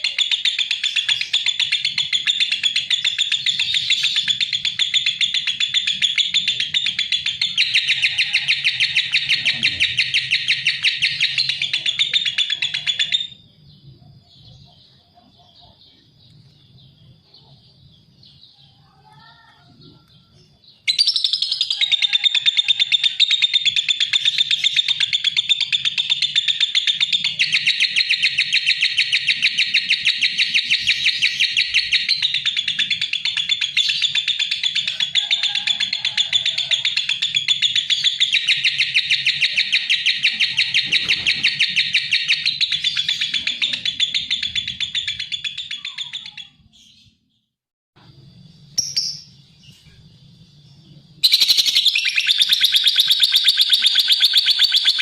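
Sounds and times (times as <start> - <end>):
lovebird chattering: 0.0 - 13.4, 20.9 - 46.7, 51.2 - 55.0.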